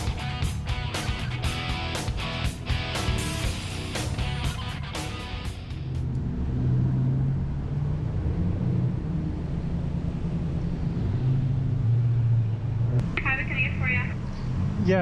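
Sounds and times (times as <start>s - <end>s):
motorcycle engine running: 0.0s - 6.2s.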